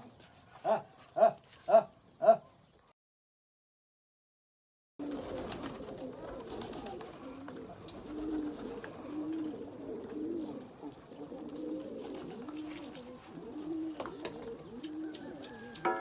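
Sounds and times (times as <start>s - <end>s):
pigeons cooing: 5.0s - 16.0s.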